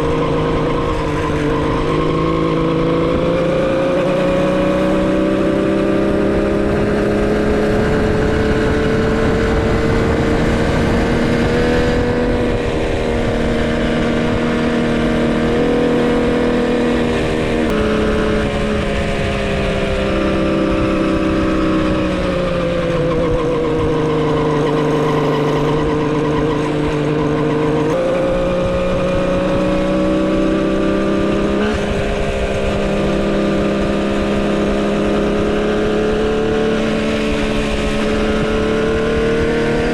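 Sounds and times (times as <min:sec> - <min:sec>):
two-stroke motorcycle engine running: 0:00.0 - 0:39.9.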